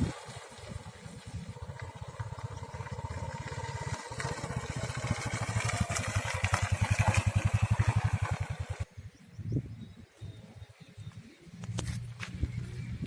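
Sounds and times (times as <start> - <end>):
motorcycle engine running: 0.0 - 8.9.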